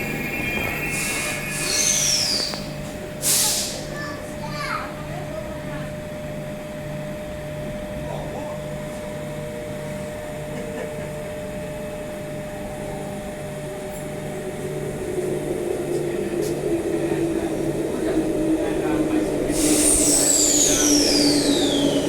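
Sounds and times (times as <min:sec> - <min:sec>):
electric train motor whine: 0:00.0 - 0:03.2, 0:11.3 - 0:22.0
station hum: 0:09.2 - 0:22.0.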